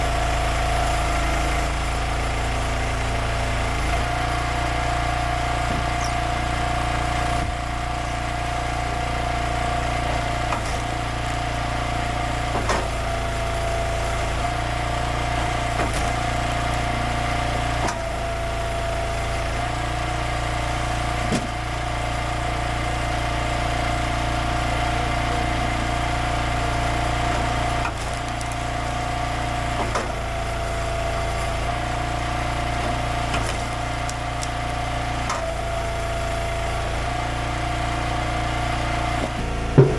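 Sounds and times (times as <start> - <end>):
small gas engine running: 0.0 - 39.9
wood cracking: 27.3 - 29.1, 32.8 - 35.0.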